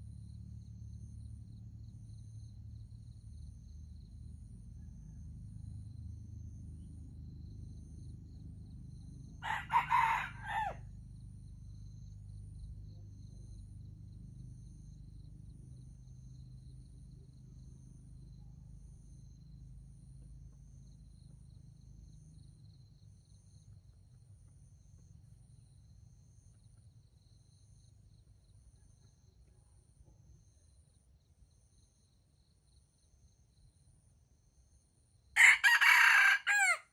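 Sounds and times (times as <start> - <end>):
rooster crowing: 9.4 - 10.9, 35.4 - 36.9.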